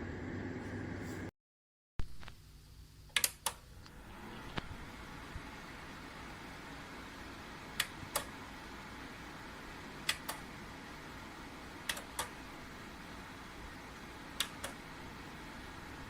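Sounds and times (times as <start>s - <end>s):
fan heater blowing: 0.0s - 1.3s, 3.4s - 16.0s
sharp clicks: 3.1s - 3.6s, 7.8s - 8.3s, 11.9s - 12.3s.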